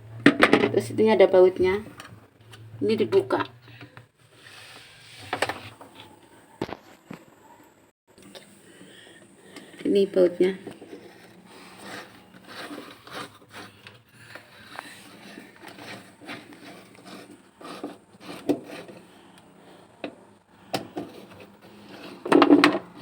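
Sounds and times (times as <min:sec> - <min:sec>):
tool scraping and rubbing plastic: 0:04.2 - 0:06.8, 0:09.5 - 0:19.4, 0:20.1 - 0:23.0.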